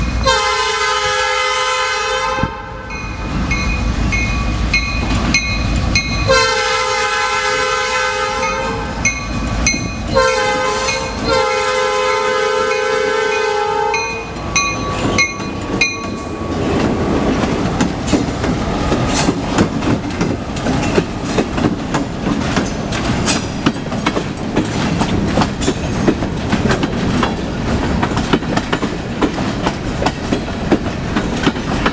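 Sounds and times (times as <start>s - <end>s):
train horn blasts: 0.2s - 3.0s, 6.2s - 9.1s, 10.1s - 14.4s
train wheels clacking over rail joints: 12.8s - 31.9s.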